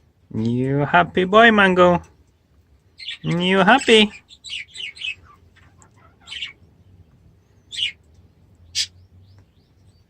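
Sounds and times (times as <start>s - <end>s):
budgerigar chirping: 3.0s - 6.8s, 7.6s - 8.0s, 8.7s - 9.0s.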